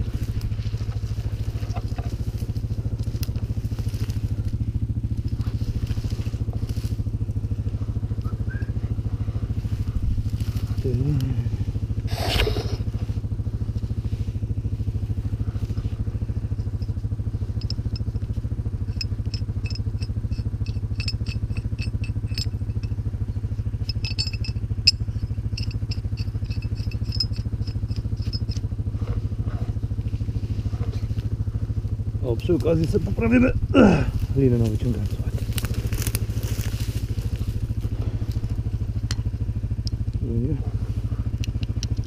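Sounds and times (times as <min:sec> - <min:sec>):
atv engine idling: 0:00.0 - 0:42.0
light metallic clicks: 0:16.5 - 0:23.0, 0:41.2 - 0:42.0.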